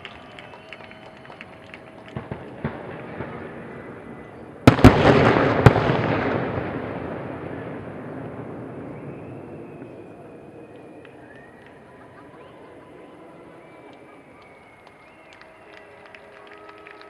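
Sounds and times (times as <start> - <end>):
firework crackling: 0.0 - 17.0
small firework pops: 0.1 - 3.6
heavy firework bangs: 1.9 - 11.6.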